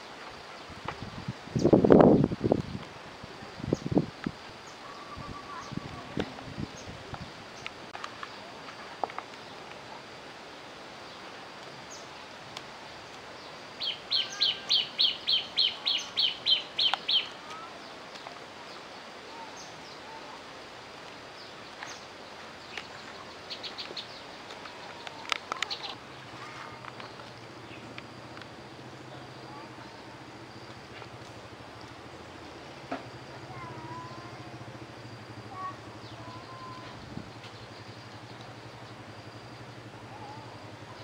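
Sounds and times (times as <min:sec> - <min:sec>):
outdoor background hiss: 0:00.0 - 0:41.0
faint bird chirps: 0:04.6 - 0:08.6, 0:13.4 - 0:20.4, 0:33.4 - 0:41.0.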